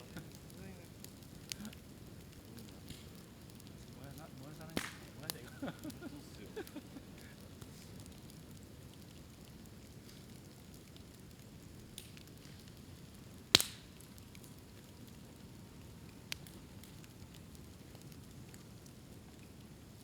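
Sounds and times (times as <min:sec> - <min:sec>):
bonfire crackling: 0:00.0 - 0:20.0
bamboo cracking with sharp pops: 0:04.7 - 0:05.2, 0:11.9 - 0:12.7, 0:13.5 - 0:14.3.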